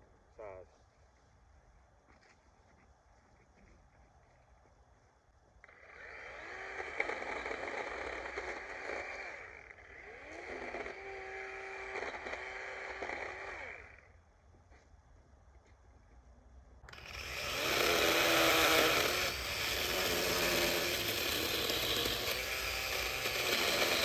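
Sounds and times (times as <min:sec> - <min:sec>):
electric chainsaw motor running: 0:05.6 - 0:14.1, 0:16.9 - 0:24.0.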